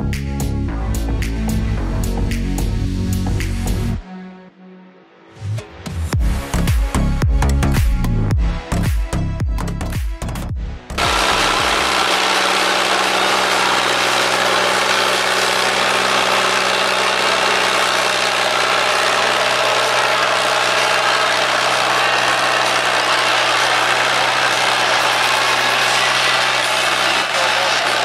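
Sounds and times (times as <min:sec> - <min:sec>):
tractor engine running: 0:11.0 - 0:28.0.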